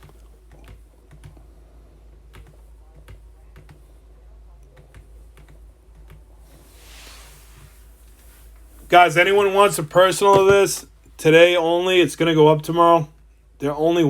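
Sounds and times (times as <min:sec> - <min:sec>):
typing on computer keyboard: 0:00.0 - 0:01.4, 0:02.3 - 0:03.8, 0:04.7 - 0:06.2
soft hiss: 0:06.3 - 0:11.2.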